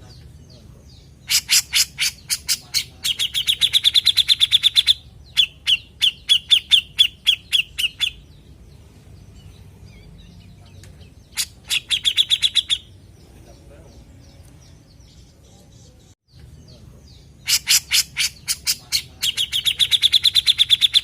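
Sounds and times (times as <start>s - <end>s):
bulbul chattering calls: 0.0s - 21.0s.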